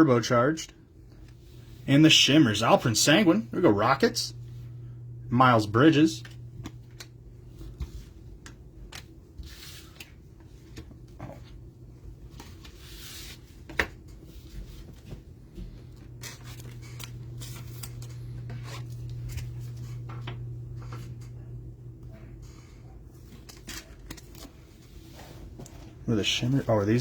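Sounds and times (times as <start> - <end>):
steady low hum: 0.0 - 27.0
cards and wrapper rustling: 16.0 - 20.1, 23.2 - 24.6.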